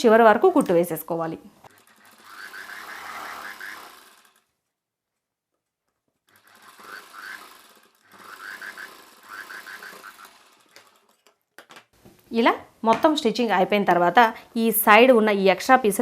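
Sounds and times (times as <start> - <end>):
sewing machine stitching: 1.6 - 4.6, 6.2 - 11.4.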